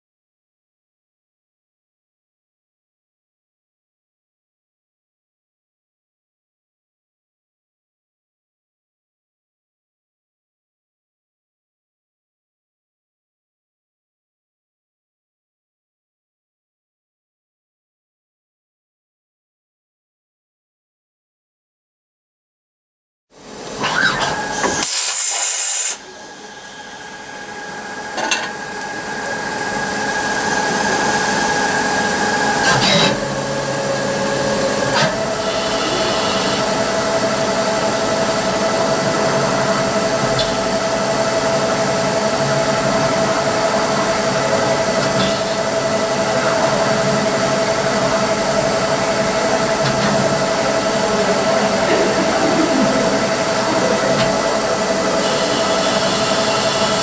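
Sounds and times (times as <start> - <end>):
lathe machine whine: 23.7 - 57.0.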